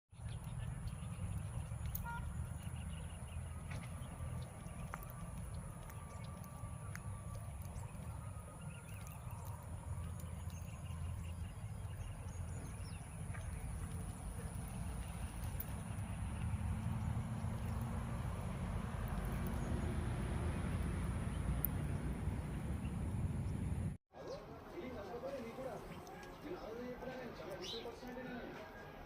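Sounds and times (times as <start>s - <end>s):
faint chirps and ticks: 0.2s - 20.0s.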